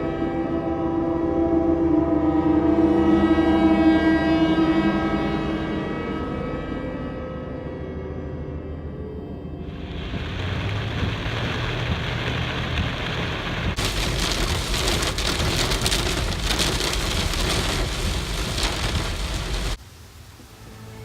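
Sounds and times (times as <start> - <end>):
low rumble: 9.6 - 20.9
heavy rain pouring: 9.7 - 21.0.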